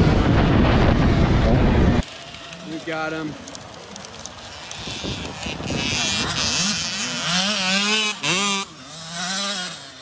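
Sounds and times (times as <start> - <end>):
dirt bike engine revving: 4.4 - 10.0.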